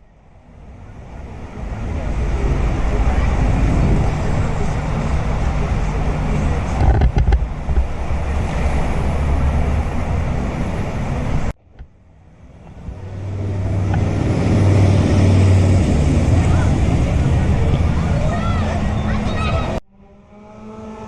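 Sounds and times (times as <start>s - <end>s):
wind buffeting microphone: 0.2s - 19.8s.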